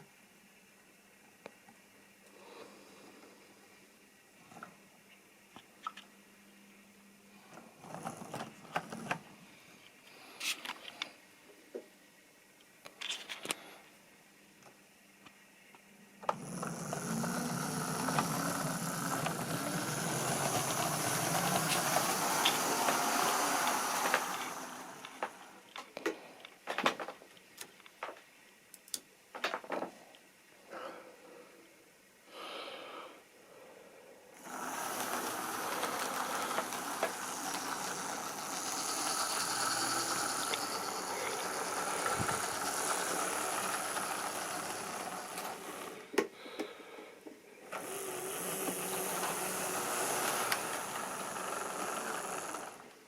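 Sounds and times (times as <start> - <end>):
wheels clicking over rails: 16.2 - 25.6, 34.4 - 46.2, 47.7 - 53.0
model train running on track: 16.3 - 25.5, 34.4 - 46.0, 47.7 - 52.9.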